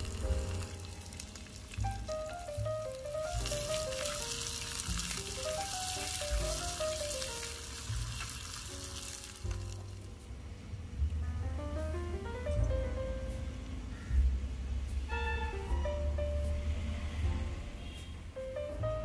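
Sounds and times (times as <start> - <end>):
onions sizzling in clay pot: 0.0 - 10.3
background music with low beats: 9.4 - 19.0.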